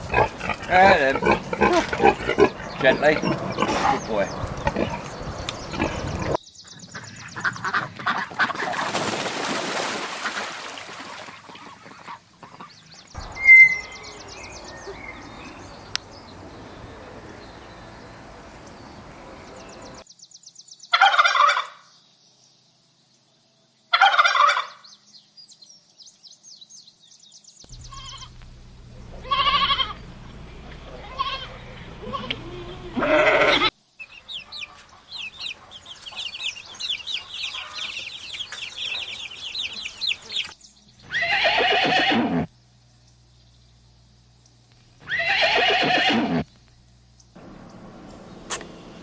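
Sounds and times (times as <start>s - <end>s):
farmyard noise: 0.0s - 9.1s, 10.2s - 15.7s, 20.9s - 21.8s, 23.9s - 24.8s, 27.7s - 42.5s, 45.0s - 46.4s
turkeys gobbling: 21.0s - 21.7s, 24.0s - 24.8s, 33.4s - 40.6s.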